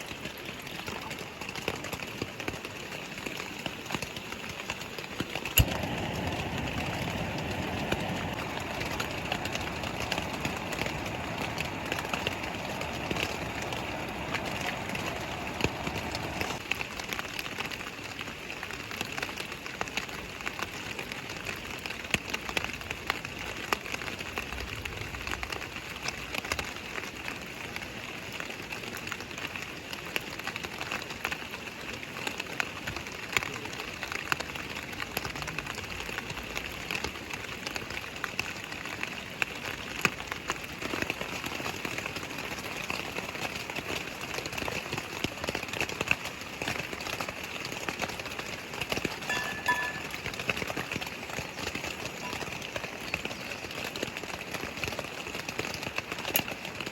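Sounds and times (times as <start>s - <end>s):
cold rain drops ticking: 0.0s - 56.9s
mountain stream rushing: 0.8s - 28.8s, 33.9s - 56.9s
low rushing sound: 5.6s - 16.6s.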